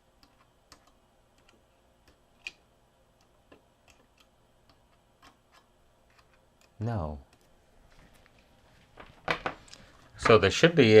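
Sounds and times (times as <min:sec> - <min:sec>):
multimeter probes clicking and tapping: 0:00.2 - 0:02.6, 0:03.2 - 0:07.5.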